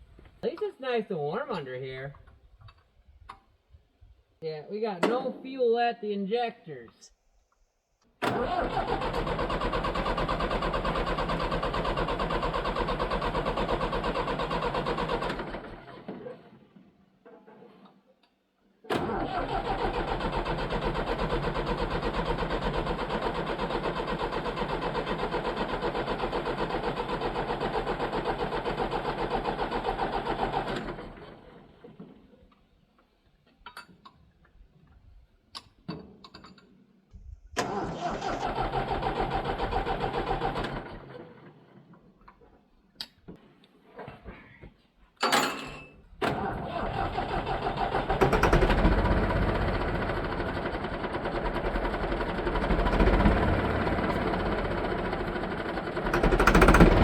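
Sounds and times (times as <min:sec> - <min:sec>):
engine cranking on starter motor: 0:08.2 - 0:16.9, 0:18.9 - 0:32.8, 0:37.2 - 0:42.5, 0:45.2 - 0:57.0.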